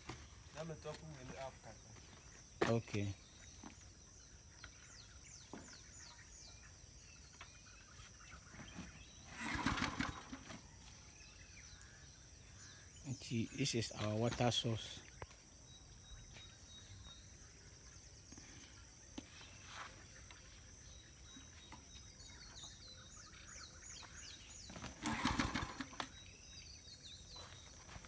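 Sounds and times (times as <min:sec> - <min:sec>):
bird chirping: 0:00.0 - 0:28.0.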